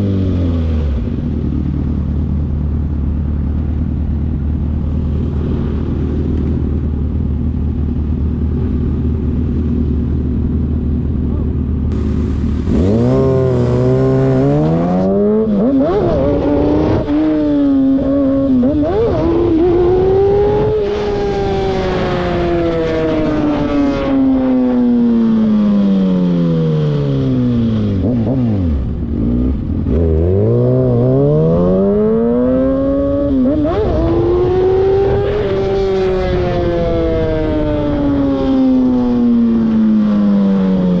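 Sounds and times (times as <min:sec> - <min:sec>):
car engine revving: 0:11.3 - 0:40.0.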